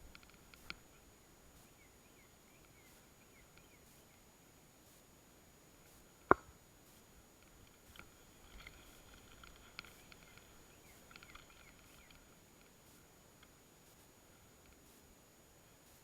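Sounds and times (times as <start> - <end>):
light ticks: 0.0 - 1.0, 7.4 - 15.0
faint high chirps: 0.0 - 5.0
sharp crack: 6.3 - 6.5.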